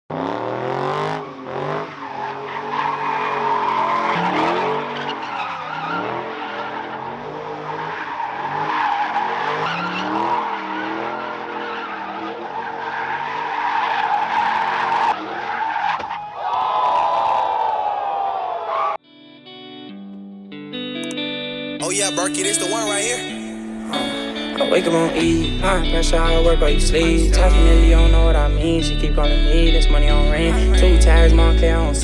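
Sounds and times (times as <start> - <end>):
car engine revving hard: 0.1 - 15.4
tyre squeal: 1.0 - 16.6.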